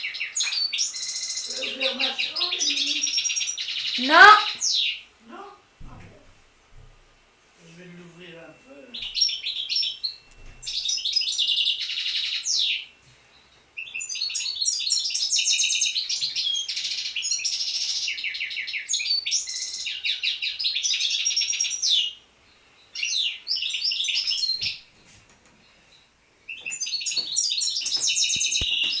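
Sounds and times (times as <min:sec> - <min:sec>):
songbird singing trills: 0:00.0 - 0:06.2, 0:08.2 - 0:24.9, 0:25.6 - 0:29.0.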